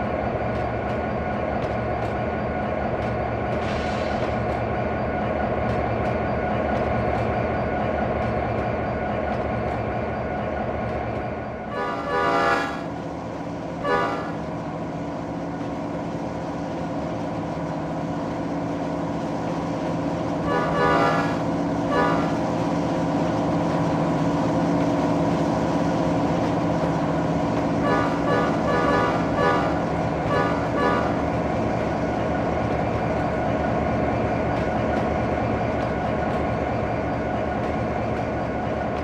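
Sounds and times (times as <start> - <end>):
locomotive running past: 0.0 - 39.0
locomotive air horn: 11.7 - 12.9, 13.8 - 14.4, 20.4 - 22.4, 27.8 - 31.2.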